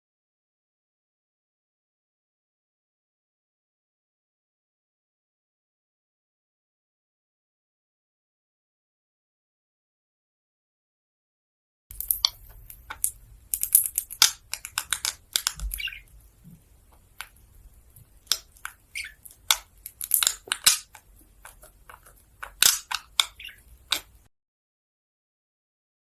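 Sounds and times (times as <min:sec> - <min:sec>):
sharp crunches and cracks: 0:11.9 - 0:24.3.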